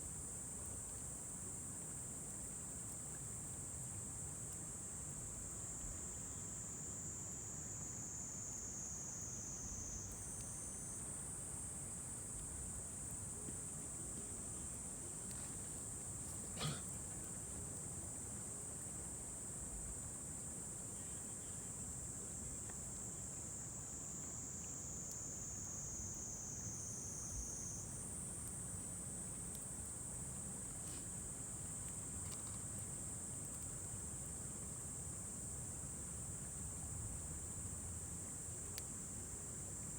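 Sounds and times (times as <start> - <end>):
insects chirping: 6.0 - 17.5, 21.0 - 36.6.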